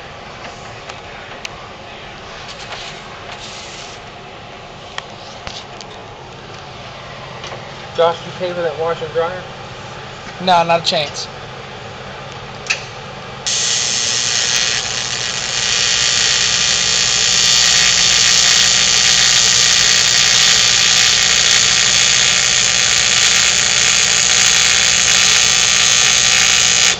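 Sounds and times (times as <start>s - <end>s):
welding arc crackling hiss: 13.5s - 26.9s.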